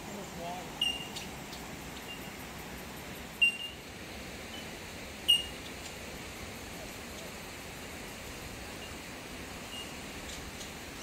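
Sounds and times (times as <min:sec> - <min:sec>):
outdoor hiss: 0:00.0 - 0:11.0
high-pitched bird chirps: 0:00.8 - 0:01.3.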